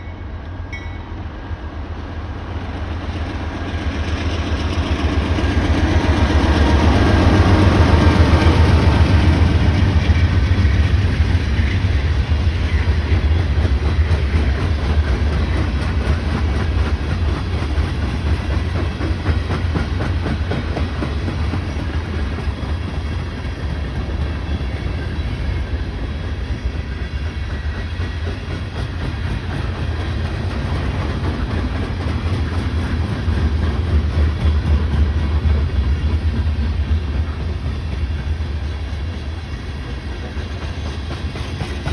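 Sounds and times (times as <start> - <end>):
diesel locomotive engine: 0.0 - 41.9
train wheels clickety-clack: 2.6 - 41.9.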